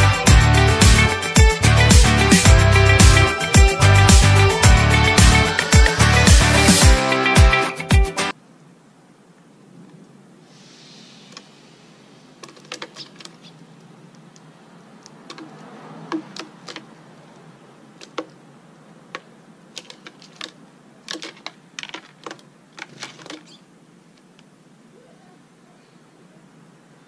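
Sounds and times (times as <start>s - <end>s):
birds pecking and hopping clicks: 12.4s - 17.0s, 18.0s - 18.4s, 19.1s - 23.6s.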